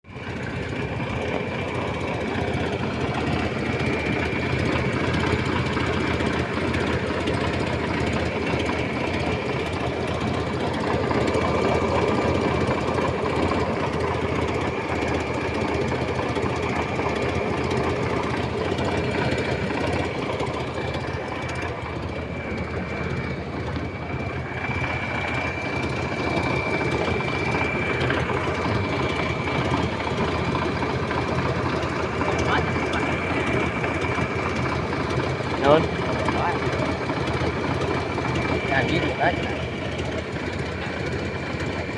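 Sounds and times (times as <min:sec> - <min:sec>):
car engine idling: 0:00.0 - 0:41.9.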